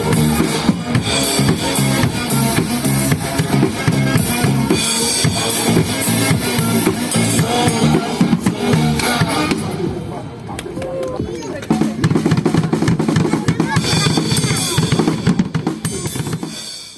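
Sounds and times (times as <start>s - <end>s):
repeating bassline: 0.0s - 9.6s
drum kit kick and snare: 0.0s - 9.7s.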